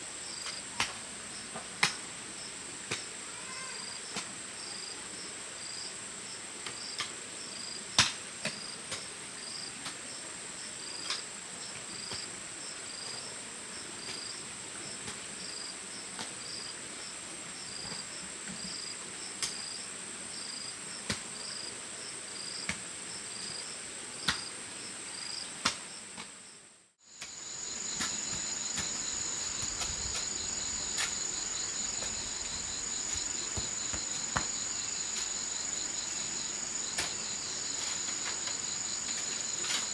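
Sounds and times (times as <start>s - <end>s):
crickets shrilling: 27.1s - 39.9s
fast pulsing insect chirp: 27.1s - 39.9s.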